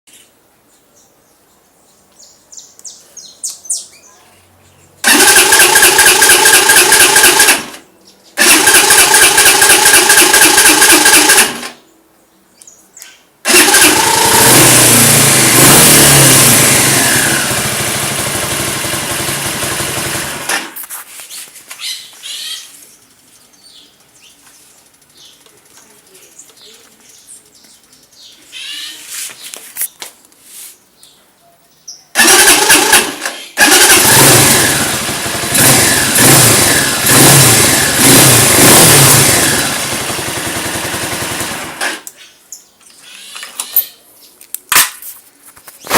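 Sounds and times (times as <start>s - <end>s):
birds chirping faintly: 0.1s - 5.0s, 21.2s - 32.2s
motorcycle engine running: 5.0s - 7.8s, 8.4s - 11.7s, 13.5s - 20.8s, 23.0s - 28.2s, 32.2s - 42.0s
motorcycle starter cranking: 5.0s - 11.8s, 13.4s - 20.8s, 32.2s - 42.2s.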